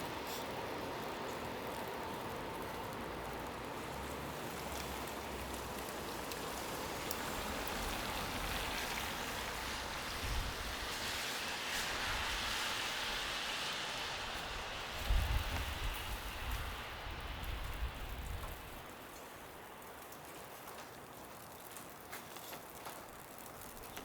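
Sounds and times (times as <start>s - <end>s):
hiss of wet snowy street: 0.0s - 24.0s.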